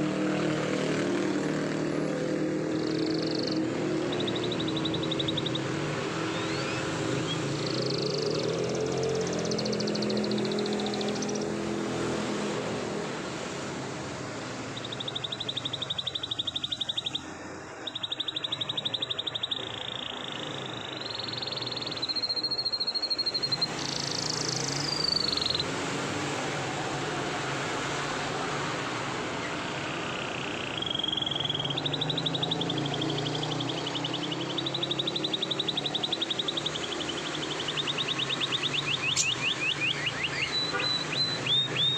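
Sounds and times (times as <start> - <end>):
canary trilling: 1.9 - 12.1, 14.6 - 25.7, 29.8 - 41.9.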